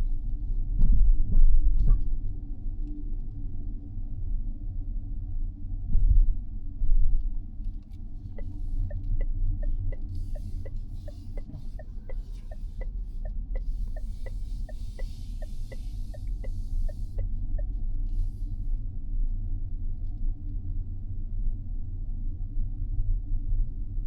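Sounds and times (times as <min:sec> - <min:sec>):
turn signal ticking: 0:08.2 - 0:17.8.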